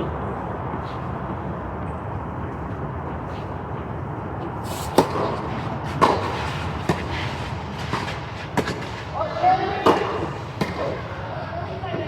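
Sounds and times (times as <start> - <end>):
steady outdoor noise: 0.0 - 12.0
tennis ball struck by racket: 4.8 - 9.0, 9.8 - 11.1.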